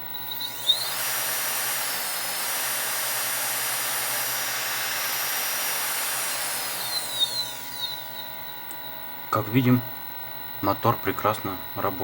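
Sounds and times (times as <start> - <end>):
electric motor whine: 0.0 - 9.3
rushing hiss: 0.5 - 8.0.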